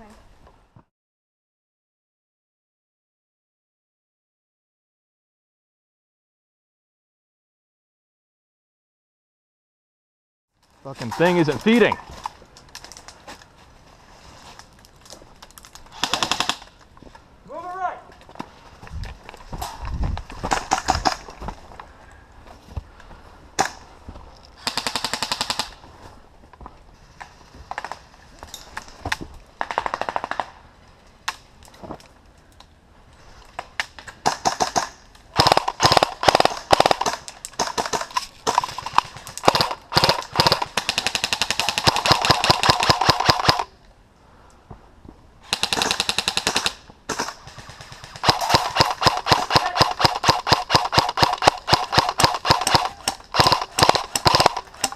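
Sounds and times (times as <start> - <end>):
airsoft rifles firing bursts: 16.0 - 16.7, 24.6 - 25.8, 34.2 - 43.7, 45.4 - 54.9.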